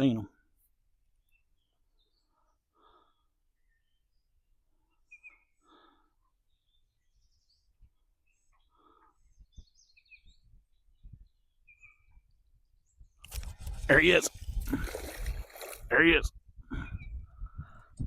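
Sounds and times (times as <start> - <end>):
faint breaths: 2.0 - 3.6, 4.7 - 6.8, 8.2 - 9.8, 16.6 - 18.0
short bird chirps: 5.0 - 5.8.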